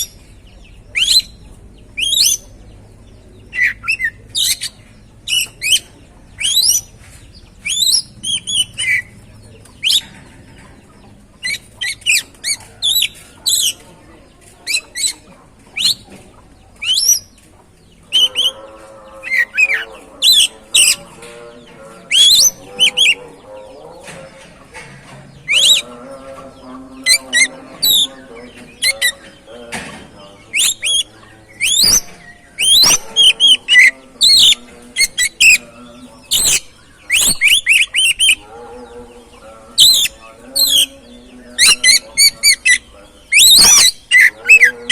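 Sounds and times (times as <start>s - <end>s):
magpie-robin whistling song: 0.9s - 1.4s, 2.0s - 2.5s, 5.3s - 6.9s, 7.6s - 9.1s, 9.8s - 10.1s, 15.8s - 16.0s, 16.8s - 17.3s, 22.1s - 23.2s, 25.5s - 25.9s, 30.5s - 35.6s, 36.3s - 38.4s, 39.8s - 40.9s, 41.6s - 44.9s.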